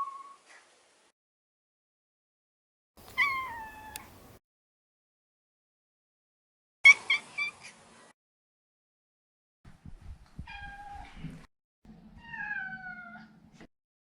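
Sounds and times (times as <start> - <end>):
cat chirping meows: 3.1 - 4.1, 6.9 - 7.8
cat drawn-out meows: 3.2 - 4.0.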